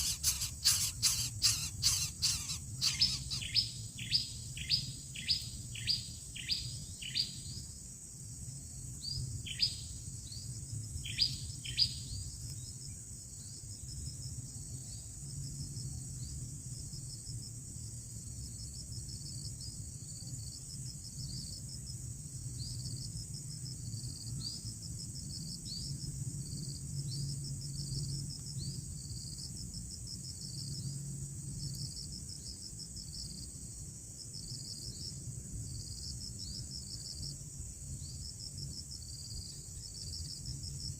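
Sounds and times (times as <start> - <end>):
bird sharp chirps: 0.0 - 5.4
insects trilling: 0.0 - 7.8, 8.6 - 21.8.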